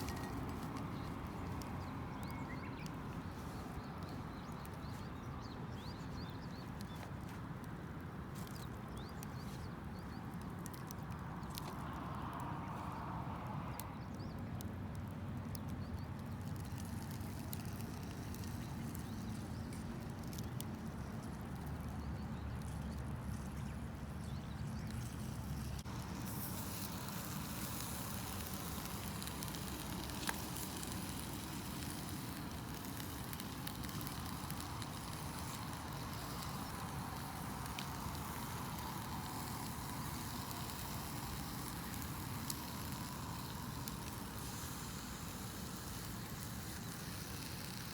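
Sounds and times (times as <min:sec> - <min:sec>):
steady high hiss: 0:00.0 - 0:05.2, 0:25.1 - 0:47.9
campfire crackling and popping: 0:00.0 - 0:47.9.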